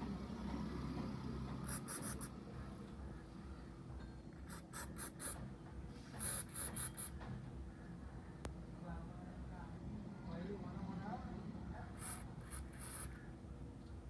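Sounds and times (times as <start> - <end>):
faint steady hum: 0.0 - 14.0
scratching on a hard surface: 4.4 - 7.4, 12.0 - 13.3.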